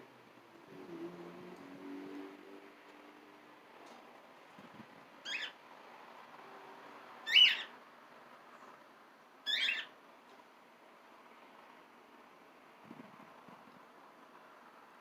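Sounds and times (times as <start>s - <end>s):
parrot calling: 5.3s - 5.6s, 7.3s - 7.7s, 9.5s - 9.9s.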